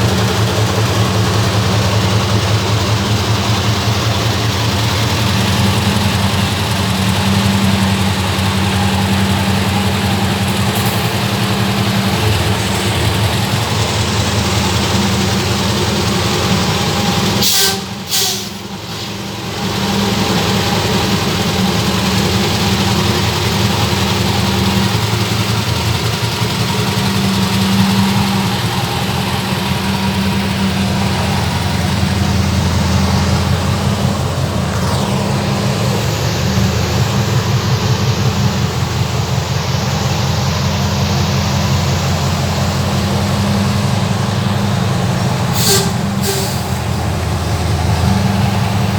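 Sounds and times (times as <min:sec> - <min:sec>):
truck diesel engine rumbling: 0:00.0 - 0:48.9.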